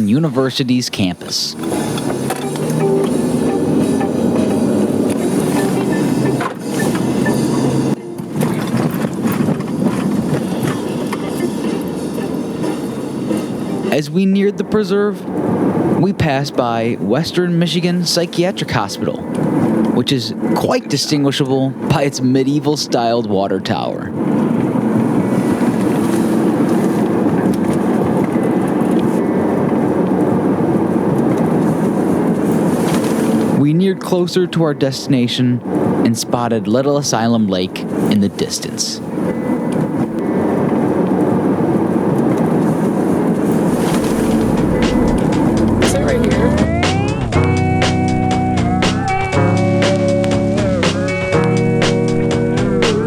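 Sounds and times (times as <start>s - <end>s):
road or rail noise: 0.0s - 21.9s, 23.9s - 33.6s, 35.6s - 36.1s, 37.6s - 53.0s
low vehicle rumble: 1.4s - 20.0s, 39.0s - 53.0s.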